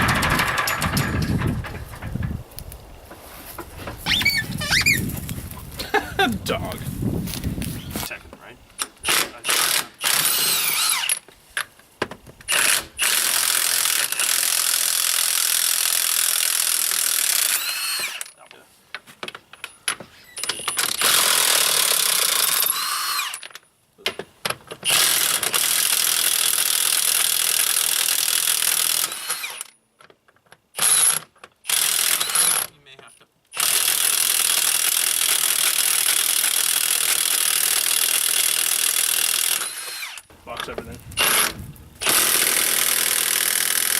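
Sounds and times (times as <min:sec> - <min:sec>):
impact wrench whining: 0:00.0 - 0:02.4, 0:04.0 - 0:05.1, 0:08.8 - 0:11.2, 0:12.5 - 0:18.4, 0:19.6 - 0:23.6, 0:24.8 - 0:29.8, 0:30.8 - 0:32.7, 0:33.6 - 0:40.3, 0:41.2 - 0:43.9.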